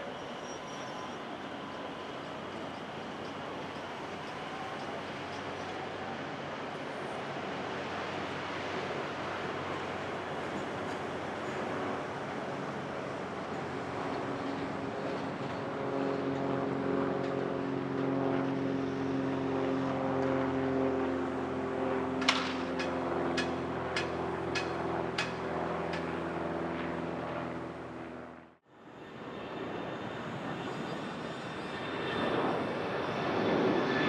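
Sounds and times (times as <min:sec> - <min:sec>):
propeller plane engine droning: 0:00.0 - 0:34.0.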